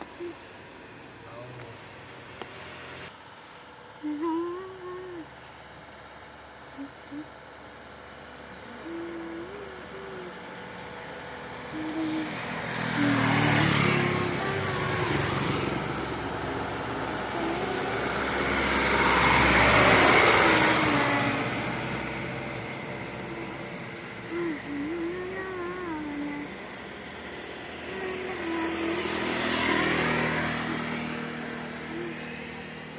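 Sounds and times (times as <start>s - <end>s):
heavy trucks passing: 0.0s - 32.9s
wavering whistle-like tone: 8.7s - 10.3s, 11.8s - 12.4s, 17.4s - 26.5s.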